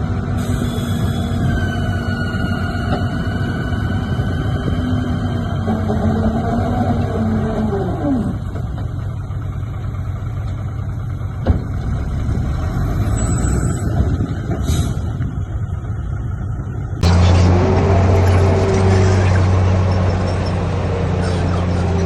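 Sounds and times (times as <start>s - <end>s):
diesel engine rumbling: 0.0s - 22.0s
low hum: 15.7s - 20.6s.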